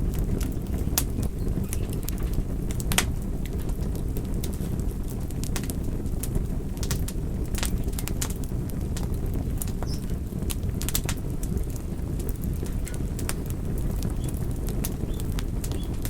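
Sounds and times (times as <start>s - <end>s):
campfire crackling and popping: 0.0s - 16.0s
low fire rumble: 0.0s - 16.0s.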